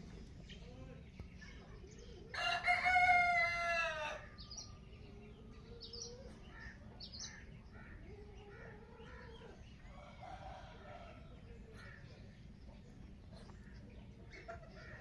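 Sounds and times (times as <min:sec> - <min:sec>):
small birds chirping: 0:00.0 - 0:15.0
rooster crowing: 0:02.4 - 0:04.3.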